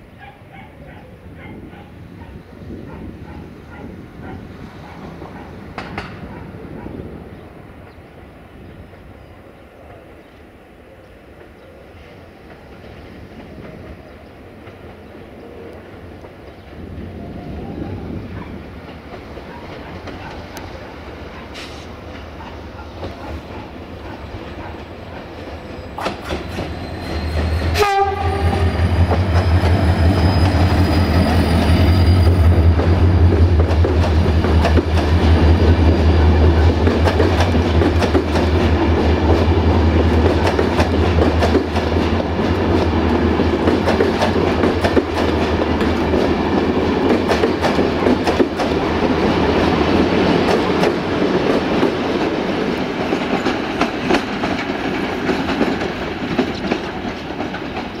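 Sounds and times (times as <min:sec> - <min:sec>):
diesel locomotive engine drumming: 0:21.4 - 0:58.0
locomotive horn: 0:27.4 - 0:29.1.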